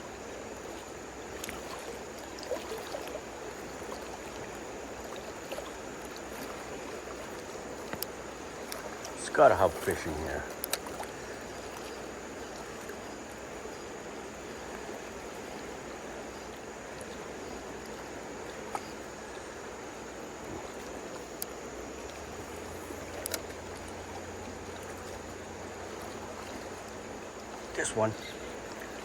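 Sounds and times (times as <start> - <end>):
flowing river water: 0.0 - 29.0.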